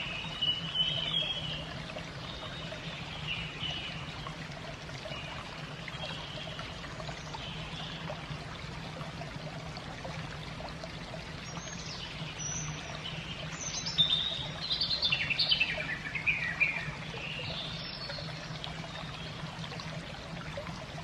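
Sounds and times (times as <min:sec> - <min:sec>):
songbird chirps and trills: 0:00.0 - 0:04.4, 0:11.4 - 0:19.5
running water trickle: 0:00.0 - 0:21.0.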